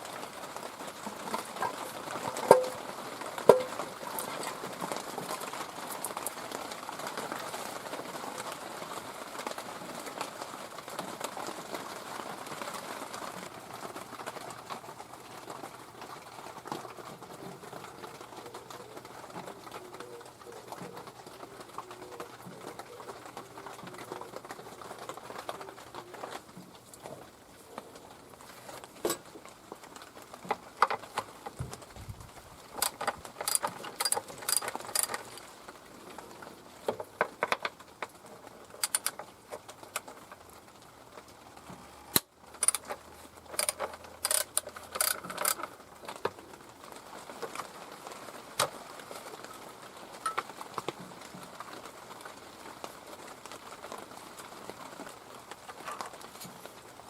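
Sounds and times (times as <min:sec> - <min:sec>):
hand tools clinking on metal: 0:32.8 - 0:35.4.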